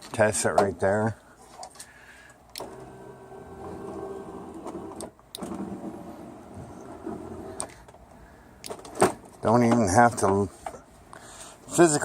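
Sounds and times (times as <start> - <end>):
electric motor running: 2.6 - 5.0, 5.6 - 7.6.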